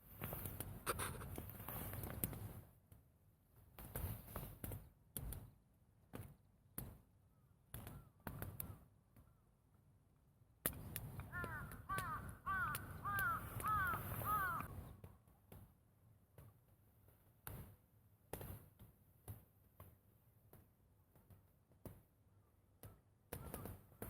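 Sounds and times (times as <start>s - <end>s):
bird calling: 11.3s - 14.7s.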